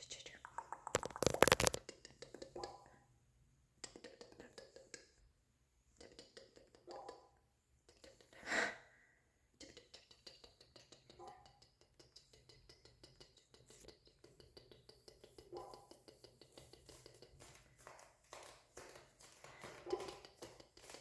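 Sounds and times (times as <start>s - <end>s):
wet mouth clicks and smacks: 0.3s - 2.8s.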